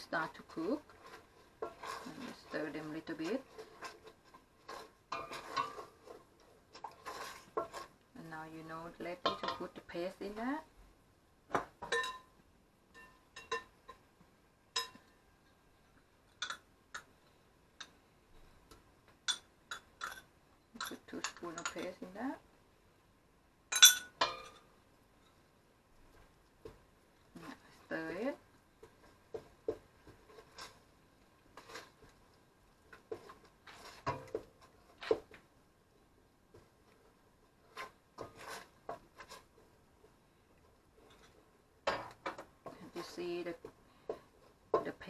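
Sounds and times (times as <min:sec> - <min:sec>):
spoon stirring in a pot: 0:00.0 - 0:10.6, 0:11.6 - 0:14.1, 0:14.7 - 0:22.2, 0:23.7 - 0:45.0
spoon scraping and knocking pot: 0:00.2 - 0:08.0, 0:09.0 - 0:09.8, 0:12.9 - 0:14.1, 0:16.3 - 0:17.1, 0:19.2 - 0:22.1, 0:28.8 - 0:30.9, 0:32.9 - 0:35.4, 0:37.6 - 0:39.6, 0:41.0 - 0:45.0.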